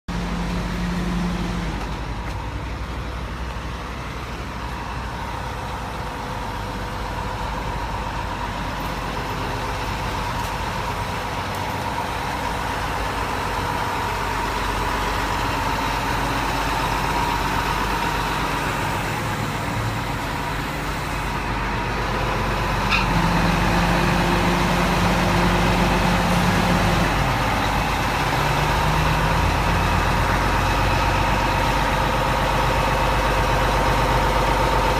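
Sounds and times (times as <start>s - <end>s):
diesel engine idling: 0.1s - 34.9s.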